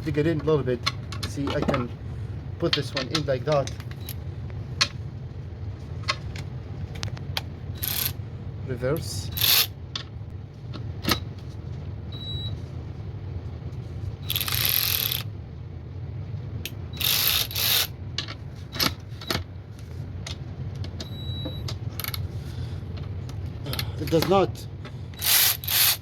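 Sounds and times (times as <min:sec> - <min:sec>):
cordless ratchet wrench running: 0:07.8 - 0:08.2, 0:09.3 - 0:09.7, 0:14.2 - 0:15.3, 0:17.0 - 0:17.9, 0:25.2 - 0:26.0.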